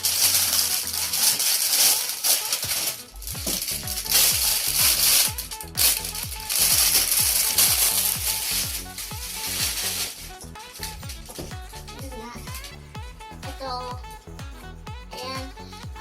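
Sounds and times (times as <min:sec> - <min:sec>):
plastic packaging crinkling: 0:00.0 - 0:11.7
background music with bass: 0:00.0 - 0:16.0.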